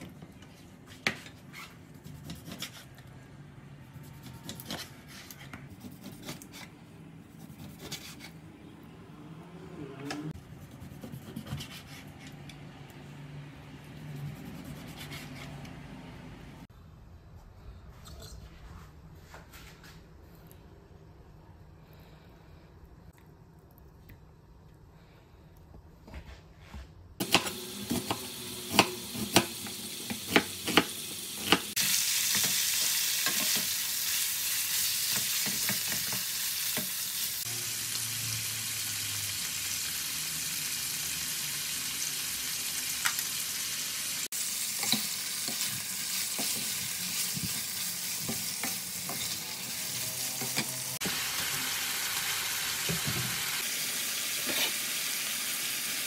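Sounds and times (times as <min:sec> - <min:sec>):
meat sizzling in a wok: 0:27.2 - 0:56.0.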